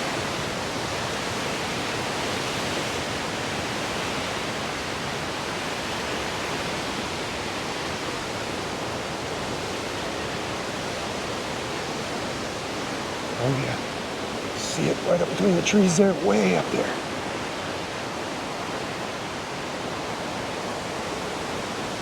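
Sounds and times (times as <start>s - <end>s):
waterfall rushing: 12.3s - 22.0s.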